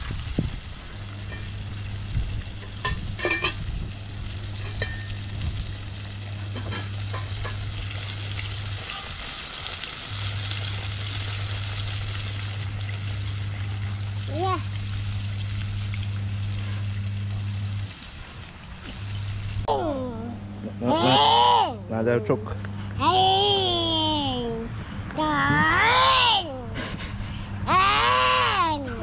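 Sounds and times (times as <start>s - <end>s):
chicken sizzling in hot oil: 0.0s - 19.7s.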